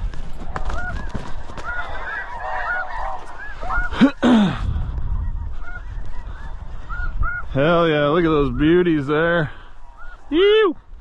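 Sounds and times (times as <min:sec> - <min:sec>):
geese honking: 0:00.4 - 0:04.4, 0:05.0 - 0:10.7
low swooping goose call: 0:00.8 - 0:04.2.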